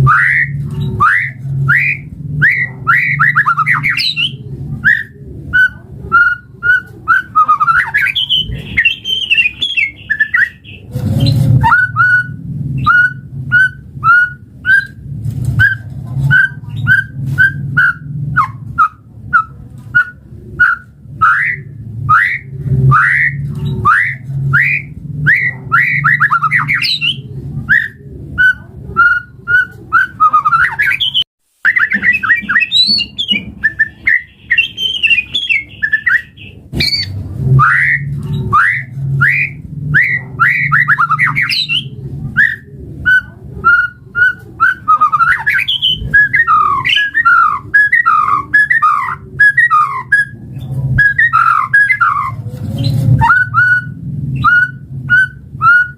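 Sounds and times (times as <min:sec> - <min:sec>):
bird singing whistled notes and trills: 0:00.0 - 0:15.0, 0:15.6 - 0:55.9
steady low hum: 0:00.0 - 0:30.7, 0:33.0 - 0:55.9.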